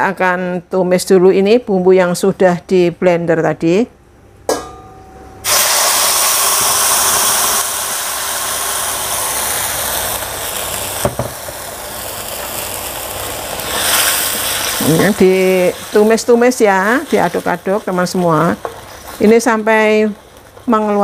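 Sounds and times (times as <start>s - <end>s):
paste sizzling in hot oil: 5.4s - 21.0s
knock: 11.1s - 11.3s.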